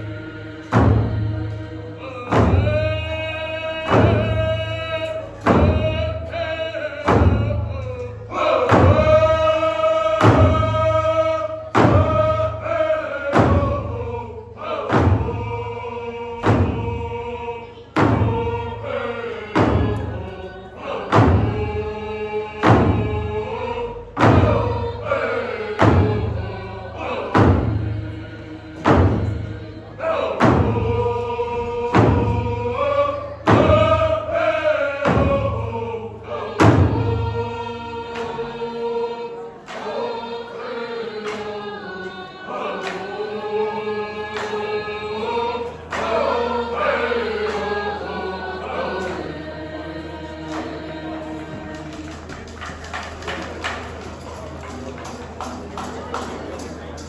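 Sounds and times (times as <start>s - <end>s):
drum beating slowly: 0.0s - 38.9s
group of voices singing: 0.0s - 57.0s.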